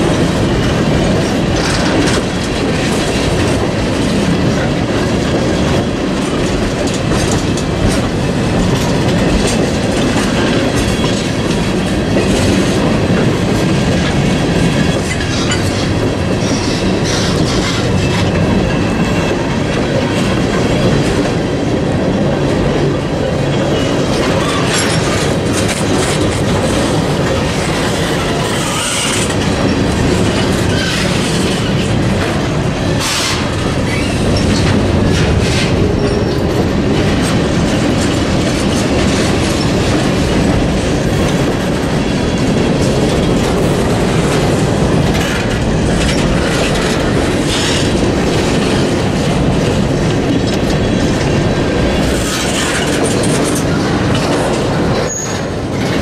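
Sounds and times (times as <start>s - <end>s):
clickety-clack over rail joints: 0.0s - 56.0s
steel wheels rumbling on rail: 0.0s - 56.0s
high wheel squeals: 55.1s - 55.5s.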